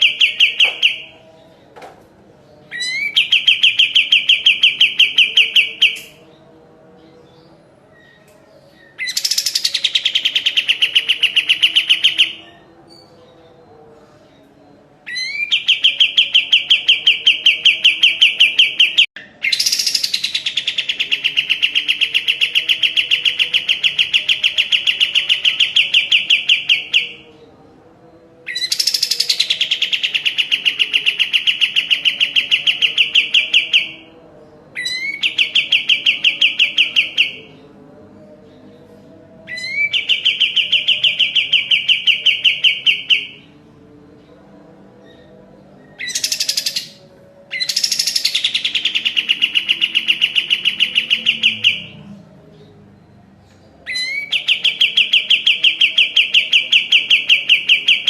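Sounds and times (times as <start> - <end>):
bird singing fast trills: 2.7 - 6.3, 8.8 - 12.6, 46.0 - 52.0.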